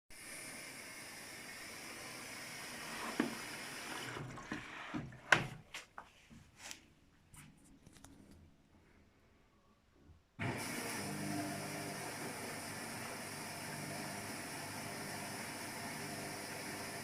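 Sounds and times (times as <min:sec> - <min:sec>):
washing machine water rush: 0:00.1 - 0:05.4, 0:10.4 - 0:17.0.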